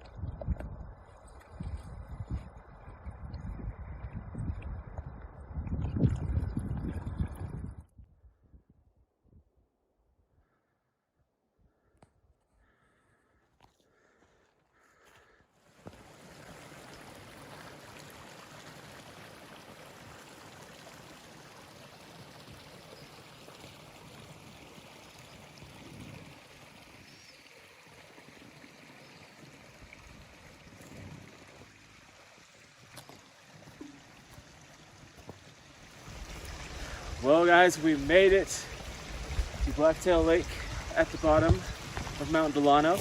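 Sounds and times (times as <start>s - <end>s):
mountain stream rushing: 15.6s - 43.0s.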